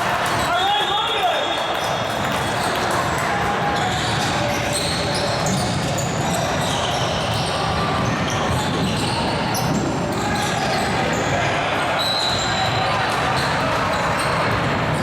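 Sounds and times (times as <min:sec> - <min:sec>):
sneakers squeaking: 0:03.7 - 0:15.0.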